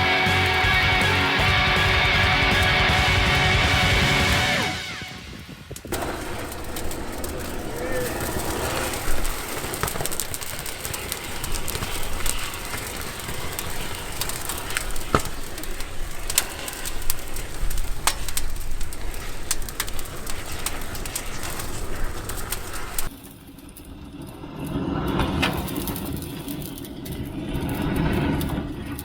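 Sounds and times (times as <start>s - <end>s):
fire hissing and crackling: 0.0s - 29.0s
sharp pops and snaps: 5.8s - 23.1s.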